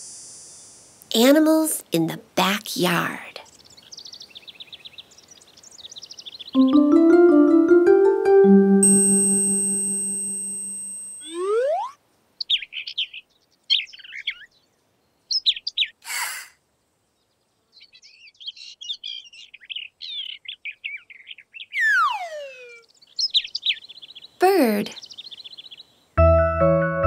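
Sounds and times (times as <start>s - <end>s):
songbird chirping and warbling: 0.4s - 7.3s, 11.2s - 26.2s
bell-like musical chord: 6.6s - 11.5s
whistle glide: 11.2s - 12.0s, 21.8s - 22.8s.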